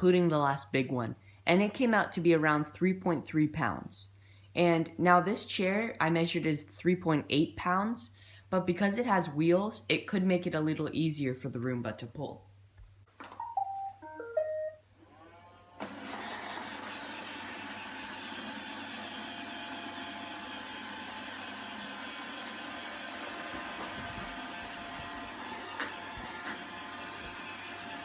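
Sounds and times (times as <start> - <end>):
vacuum motor whirring: 15.0 - 28.0.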